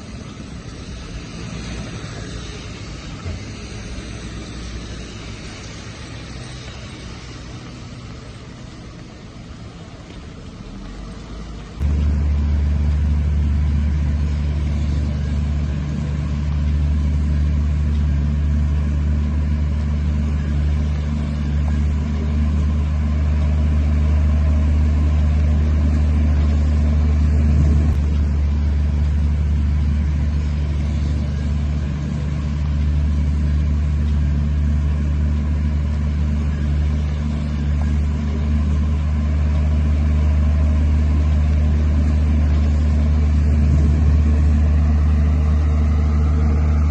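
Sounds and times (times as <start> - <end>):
heavy diesel engine running: 0.0 - 46.9.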